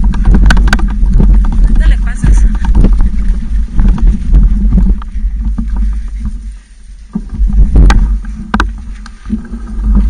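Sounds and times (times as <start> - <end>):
bike rattling over rough ground: 0.0 - 10.0
wind rumble on microphone: 0.0 - 10.0.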